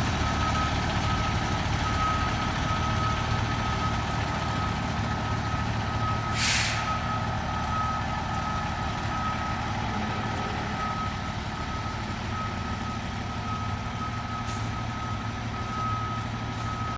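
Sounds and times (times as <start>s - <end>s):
fire engine running low: 0.0s - 16.9s
air brake hiss: 6.3s - 7.0s.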